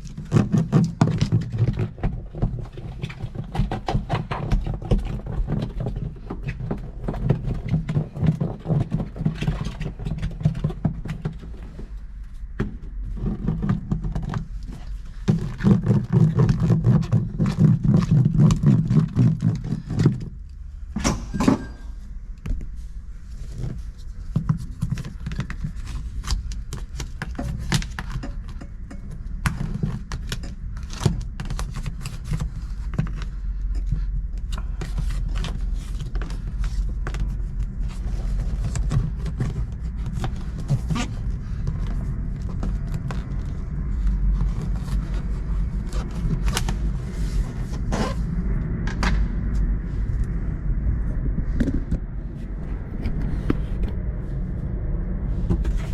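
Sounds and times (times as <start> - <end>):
steady low rumble: 1.0 - 55.9
scraping: 55.4 - 55.9.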